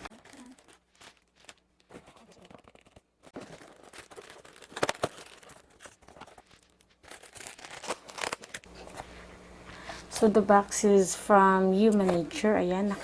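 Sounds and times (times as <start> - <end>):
packaging tearing and crinkling: 0.0 - 8.7.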